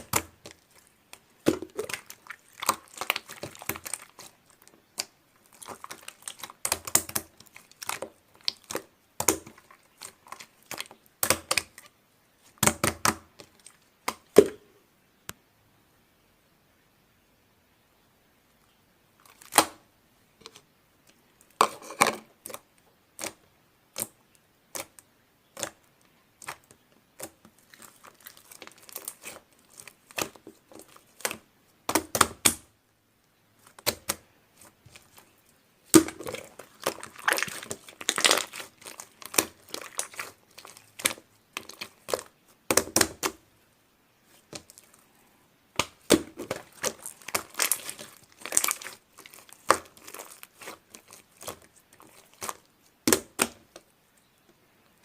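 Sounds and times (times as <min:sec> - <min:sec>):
slime squeezed by hand: 0:36.0 - 0:42.3, 0:46.0 - 0:52.7.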